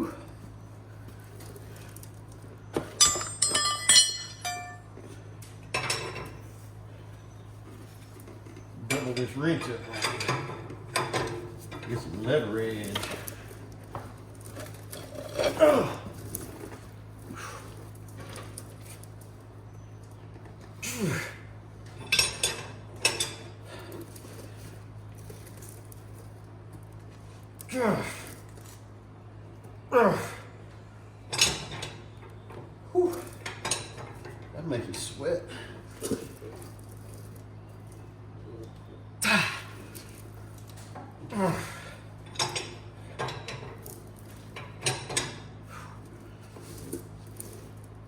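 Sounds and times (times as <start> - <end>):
low hum: 0.0 - 9.9
steady low hum: 0.0 - 48.0
metal tools clinking: 2.8 - 5.0, 8.5 - 13.6
steel wrenches clanking: 2.8 - 5.0, 8.8 - 13.4
strained groan: 15.0 - 16.2, 27.7 - 28.4, 29.9 - 30.5, 41.2 - 42.0.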